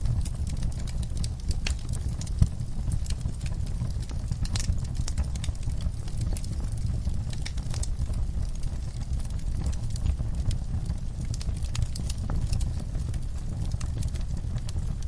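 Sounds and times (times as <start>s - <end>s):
logs crackling and popping: 0.0s - 15.0s
low rumble of flames: 0.0s - 15.0s.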